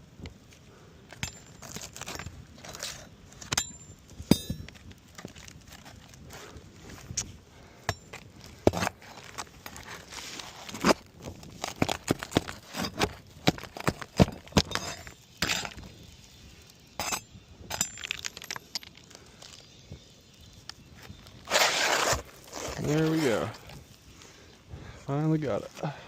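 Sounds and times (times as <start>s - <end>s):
metal tool prying at shingle: 1.1s - 4.8s, 7.9s - 9.0s, 11.6s - 15.8s, 17.0s - 18.9s.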